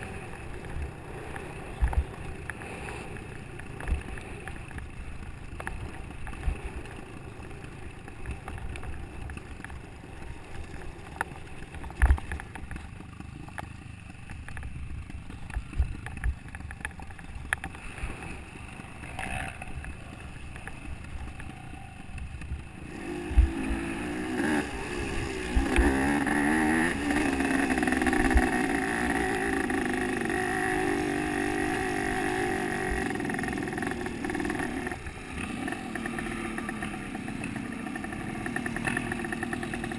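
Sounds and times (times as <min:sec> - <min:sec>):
motocross bike engine revving: 0:17.8 - 0:20.6, 0:22.8 - 0:39.9.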